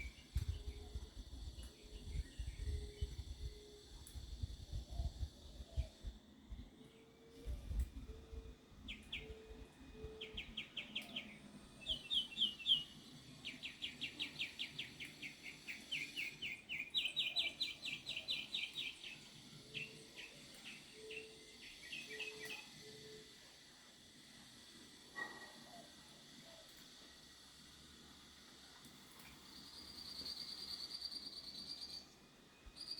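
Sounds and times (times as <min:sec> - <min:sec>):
birds trilling chirps: 0:08.4 - 0:23.2.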